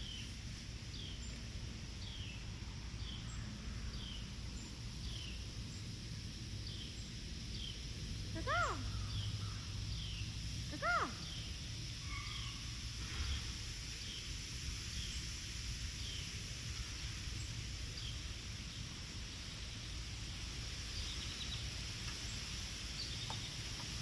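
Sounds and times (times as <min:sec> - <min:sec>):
faint high bird chirps: 0:08.4 - 0:14.2.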